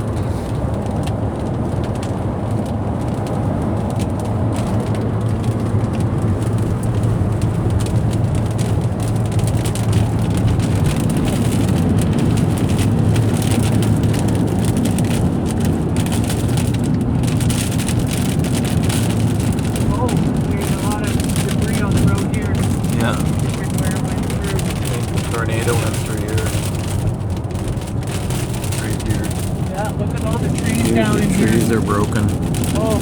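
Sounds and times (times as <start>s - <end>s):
car engine and road rumble: 0.0s - 33.0s
rain hitting windshield and roof: 0.0s - 33.0s.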